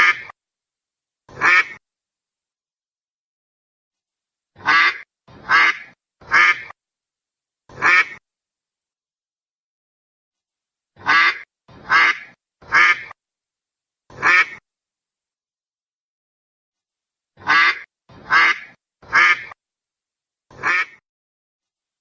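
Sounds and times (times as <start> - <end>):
duck quacking: 0.0 - 0.3, 1.3 - 1.8, 4.6 - 6.8, 7.7 - 8.2, 11.0 - 13.2, 14.1 - 14.6, 17.4 - 19.6, 20.5 - 21.0.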